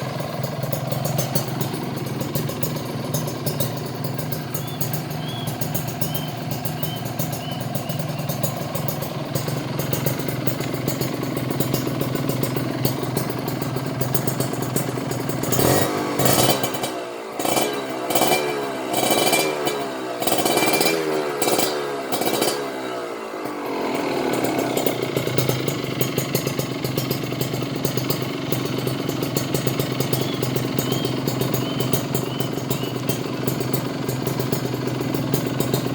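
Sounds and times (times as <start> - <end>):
motorcycle engine idling and revving: 0.0 - 35.9.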